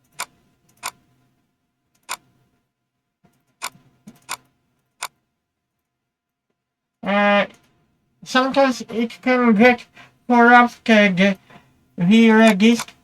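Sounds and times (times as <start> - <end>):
computer mouse clicks: 0.0 - 1.0, 2.0 - 2.3, 3.3 - 5.2.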